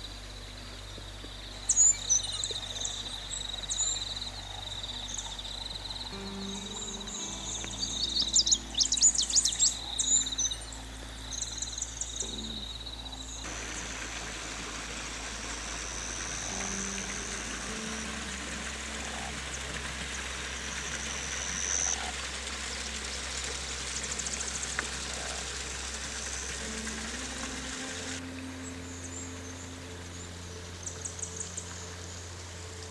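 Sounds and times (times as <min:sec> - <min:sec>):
birds chirping and trilling: 0:00.0 - 0:32.9
running water hissing: 0:00.0 - 0:32.9
thin high steady tone: 0:05.0 - 0:22.8.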